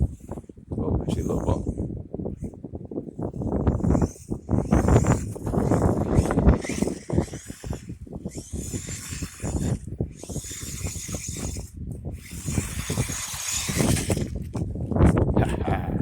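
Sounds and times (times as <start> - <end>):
rc truck motor whine: 3.2 - 15.1.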